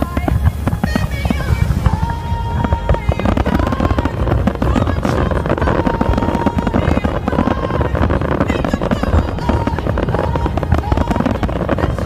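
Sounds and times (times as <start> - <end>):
fireworks bangs and crackle: 0.0 - 12.0.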